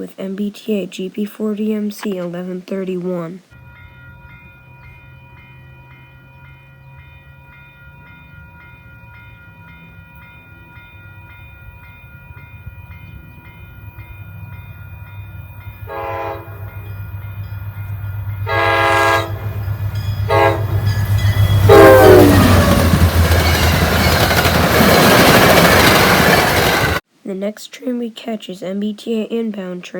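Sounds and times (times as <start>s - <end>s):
crossing bell ringing: 3.5s - 27.0s
train passing rumble: 3.6s - 27.0s
diesel locomotive engine: 9.2s - 27.0s
locomotive horn blasts: 15.9s - 17.0s, 18.4s - 19.6s, 20.2s - 23.0s.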